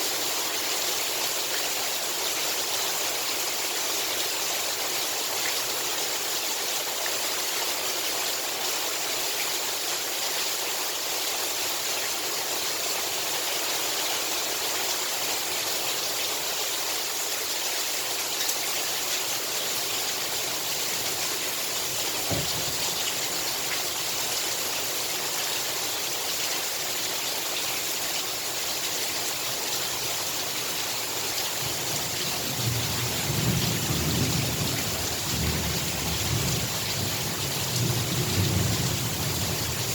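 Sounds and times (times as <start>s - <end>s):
heavy rain falling: 0.0s - 39.9s
low thunder rumbling: 21.9s - 23.6s
low thump: 22.2s - 23.5s.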